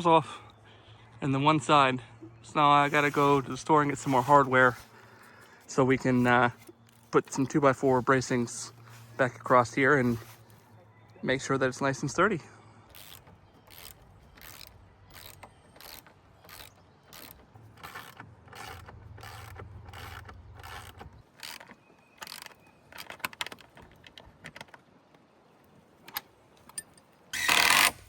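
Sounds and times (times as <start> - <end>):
mechanical clicks: 12.9 - 24.2.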